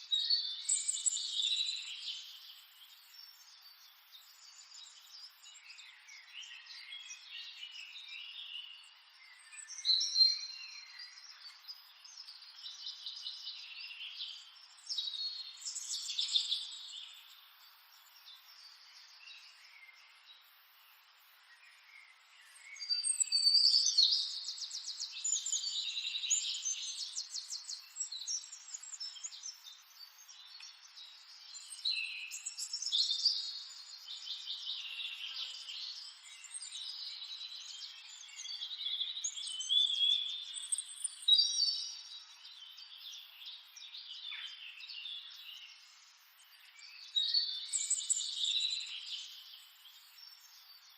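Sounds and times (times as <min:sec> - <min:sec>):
birds chirping and singing: 0:18.0 - 0:50.9.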